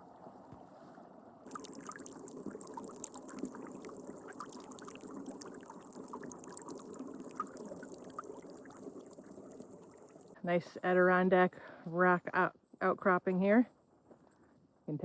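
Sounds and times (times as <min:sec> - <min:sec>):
stream running: 0:01.4 - 0:10.4.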